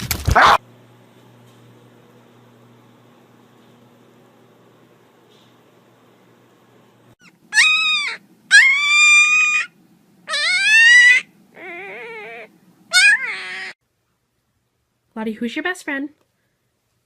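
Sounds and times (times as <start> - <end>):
animal high-pitched cries: 7.2 - 13.8.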